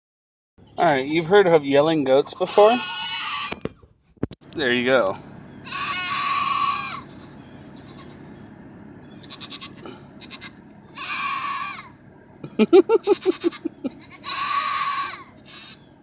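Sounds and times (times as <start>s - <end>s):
low pulsing goat calls: 0.7s - 3.8s, 5.4s - 16.0s
goat bleating: 0.8s - 1.5s, 2.1s - 3.7s, 5.6s - 8.4s, 9.0s - 12.0s, 12.7s - 16.0s
goat screaming: 2.1s - 3.7s, 5.6s - 8.3s, 9.0s - 12.0s, 12.9s - 16.0s.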